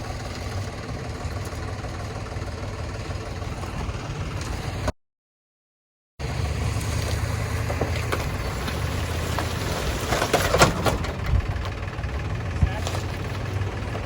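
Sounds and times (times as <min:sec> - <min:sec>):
truck engine running: 0:00.0 - 0:04.9, 0:06.2 - 0:14.0
knocks and clatters: 0:07.6 - 0:11.9.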